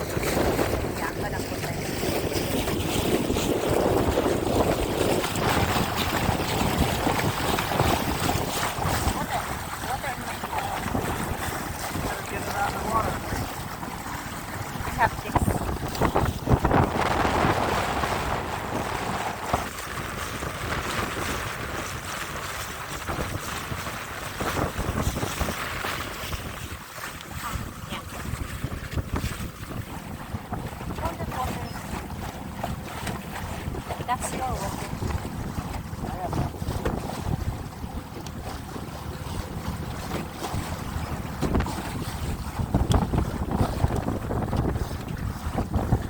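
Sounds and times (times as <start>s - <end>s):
water rushing past boat: 0.0s - 46.0s
wind buffeting microphone: 0.0s - 46.0s
wind rushing: 10.8s - 21.5s.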